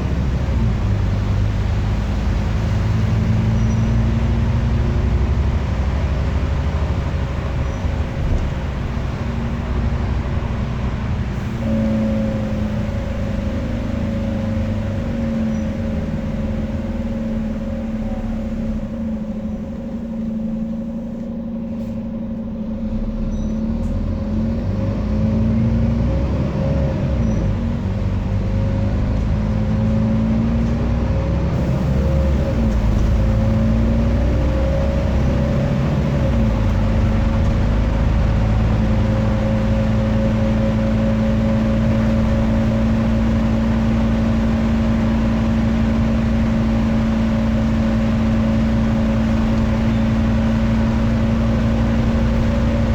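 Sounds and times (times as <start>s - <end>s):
bus engine accelerating: 0.0s - 52.9s.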